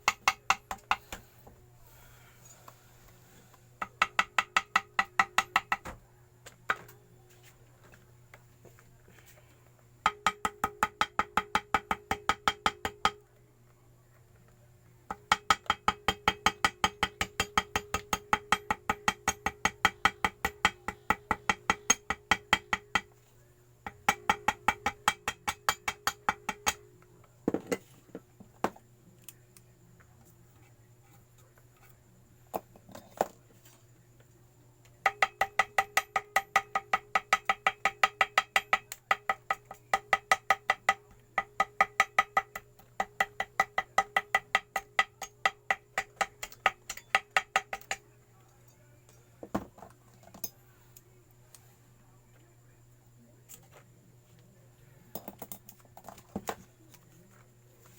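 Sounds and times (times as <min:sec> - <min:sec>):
small hammer tapping: 0:00.0 - 0:01.3, 0:03.8 - 0:06.0, 0:10.0 - 0:13.2, 0:15.1 - 0:23.1, 0:23.8 - 0:26.9, 0:35.0 - 0:48.0.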